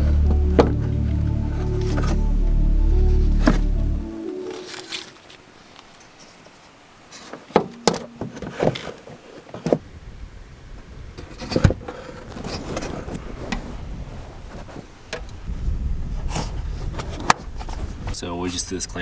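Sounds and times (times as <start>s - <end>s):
low background rumble: 0.0s - 4.2s.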